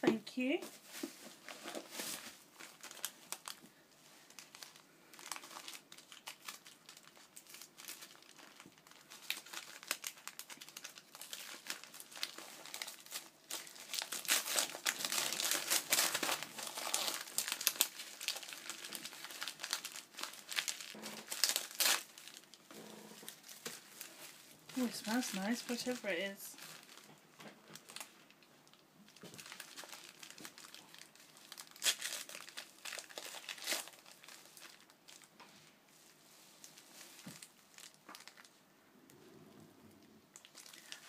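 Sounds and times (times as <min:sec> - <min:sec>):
packaging crinkling and rustling: 0:00.6 - 0:35.5, 0:36.5 - 0:38.6, 0:40.0 - 0:41.0.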